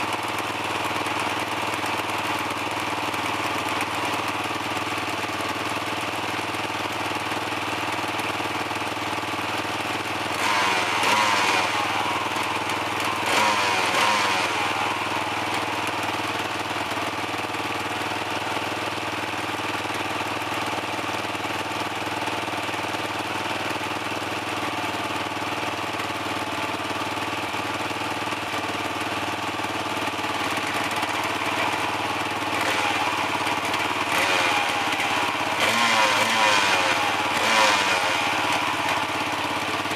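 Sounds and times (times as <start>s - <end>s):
engine revving: 0.0s - 6.2s, 9.9s - 17.6s, 30.3s - 39.9s
dirt bike engine idling: 0.0s - 39.9s.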